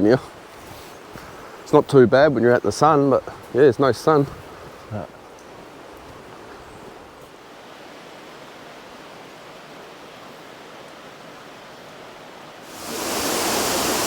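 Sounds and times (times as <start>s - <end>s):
rush of falling water: 7.3s - 14.0s.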